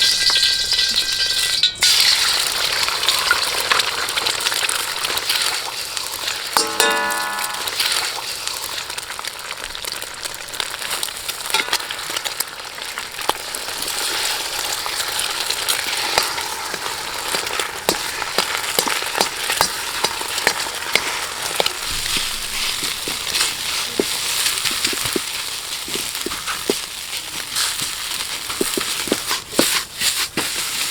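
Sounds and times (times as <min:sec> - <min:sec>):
rice sizzling in a wok: 0:00.0 - 0:30.9
ladle knocking against wok: 0:06.6 - 0:08.0, 0:11.5 - 0:12.5, 0:14.6 - 0:21.9.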